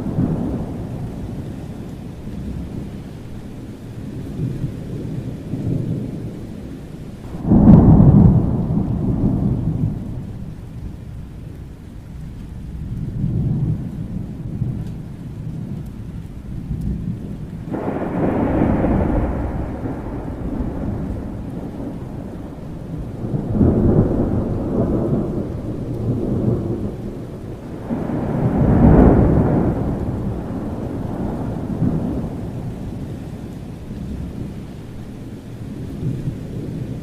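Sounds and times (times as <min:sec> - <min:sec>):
rain falling: 0:00.0 - 0:37.0
thunder rumbling: 0:00.0 - 0:37.0
loud thunder peal: 0:07.2 - 0:10.5, 0:17.0 - 0:33.2.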